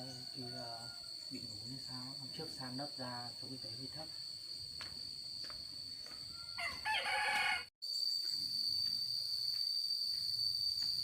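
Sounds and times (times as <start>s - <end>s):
rooster crowing: 0.0s - 1.2s, 6.2s - 7.7s
high-pitched insect drone: 0.0s - 11.0s.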